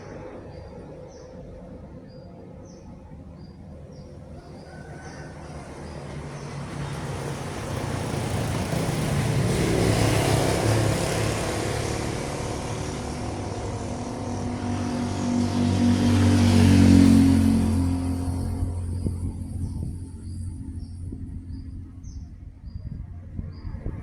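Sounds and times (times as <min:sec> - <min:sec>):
deep engine drone: 0:00.0 - 0:24.0
heavy trucks passing: 0:05.3 - 0:21.4.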